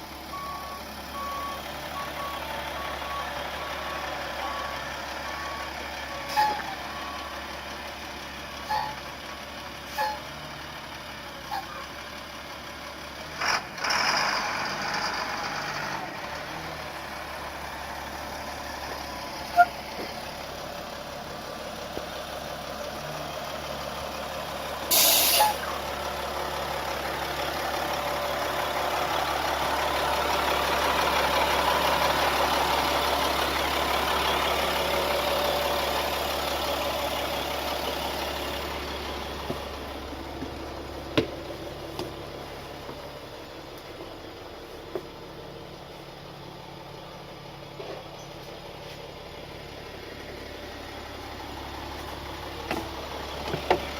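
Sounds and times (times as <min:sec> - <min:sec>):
bus engine running: 0:00.0 - 0:53.9
air brake hiss: 0:24.9 - 0:25.7.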